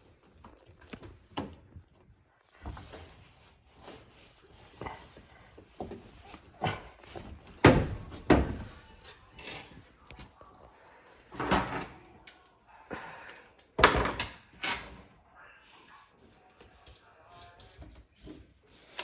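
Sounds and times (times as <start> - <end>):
knocks and bangs on washing machine: 7.4 - 8.8, 13.8 - 14.4.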